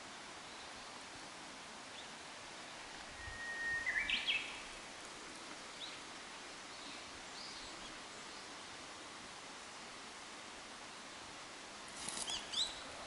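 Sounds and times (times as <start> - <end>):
songbird singing: 0.0 - 1.2, 1.8 - 8.8, 12.0 - 13.0
steady background hiss: 0.0 - 13.0.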